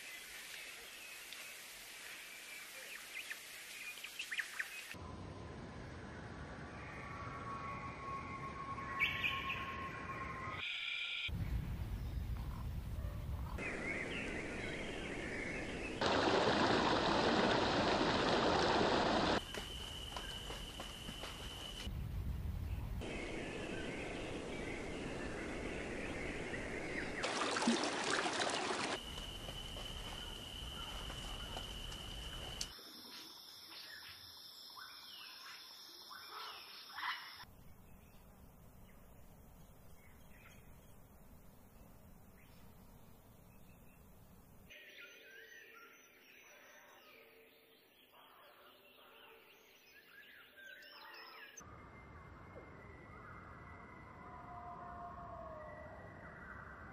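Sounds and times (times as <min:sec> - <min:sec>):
outdoor background noise: 0:00.0 - 0:56.9
songbird chirps: 0:06.5 - 0:54.4
wild birds calling: 0:23.0 - 0:32.7.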